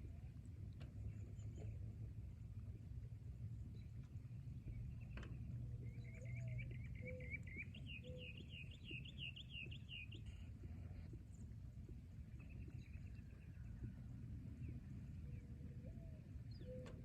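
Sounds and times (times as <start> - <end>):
songbird singing quick notes: 6.0 - 10.4.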